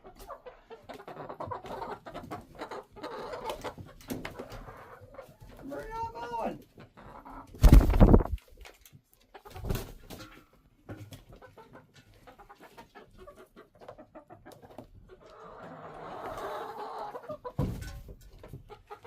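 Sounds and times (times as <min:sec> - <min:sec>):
chickens clucking: 0:00.0 - 0:19.0
loud brief rustling: 0:07.6 - 0:08.4.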